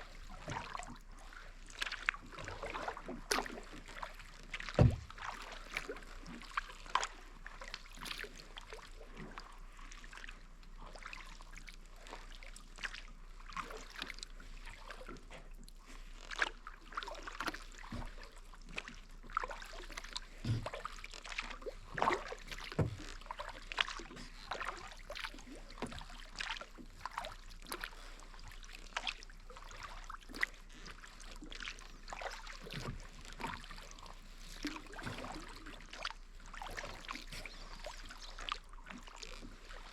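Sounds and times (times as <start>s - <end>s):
paddle dipping into water: 0.0s - 39.9s
water dripping off paddle: 1.8s - 9.5s, 18.7s - 28.1s, 28.7s - 39.9s.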